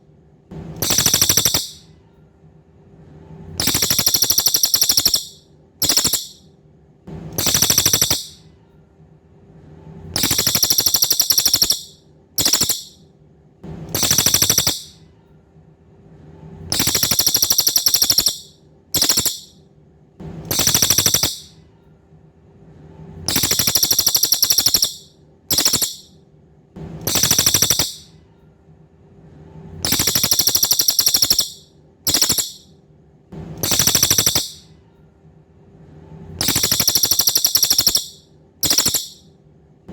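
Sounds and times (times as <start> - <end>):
faint steady hum: 0.0 - 39.9
songbird buzzy trilled calls: 0.8 - 1.8, 3.6 - 6.4, 7.4 - 8.4, 10.2 - 13.0, 14.0 - 15.0, 16.7 - 19.6, 20.5 - 21.6, 23.3 - 26.1, 27.0 - 28.1, 29.8 - 32.7, 33.6 - 34.6, 36.4 - 39.2.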